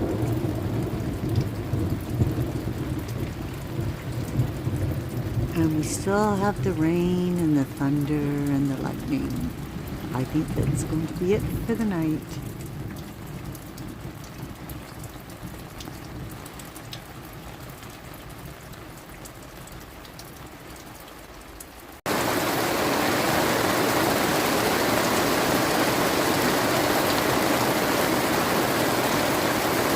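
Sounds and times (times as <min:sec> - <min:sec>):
dense downpour hiss: 0:00.0 - 0:29.9
steady rain falling: 0:00.0 - 0:29.9.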